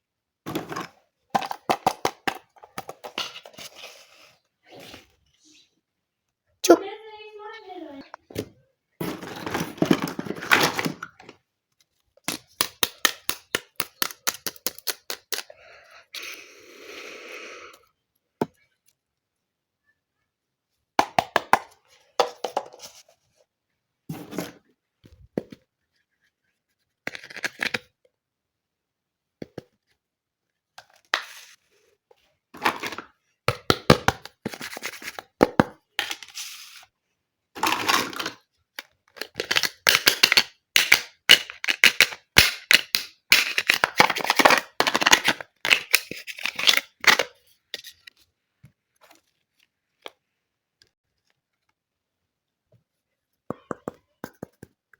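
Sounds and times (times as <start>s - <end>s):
plastic toy pieces clicking: 39.2s - 47.0s.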